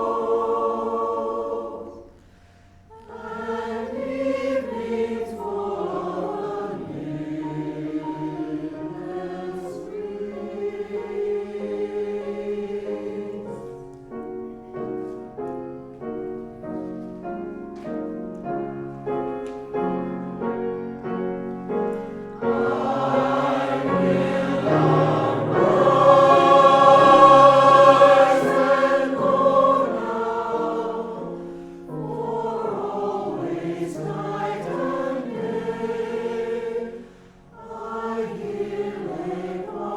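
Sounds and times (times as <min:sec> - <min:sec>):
choir singing: 0:00.0 - 0:15.2, 0:19.4 - 0:39.9.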